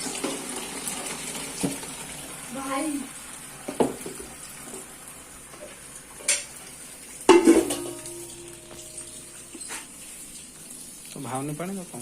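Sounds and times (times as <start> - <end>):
metal pots and utensils clattering: 5.5 - 6.6, 7.2 - 10.0.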